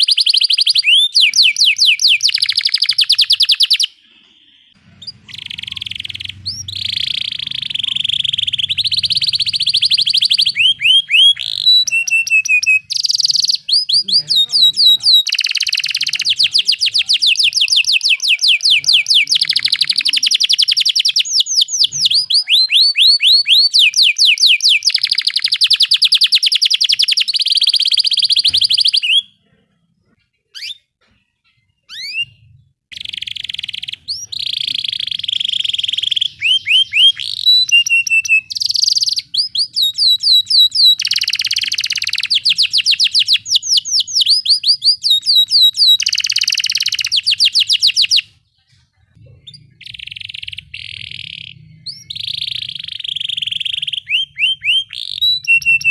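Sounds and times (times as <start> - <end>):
single bird chirps: 0.0 - 29.4
canary singing trills: 0.0 - 55.9.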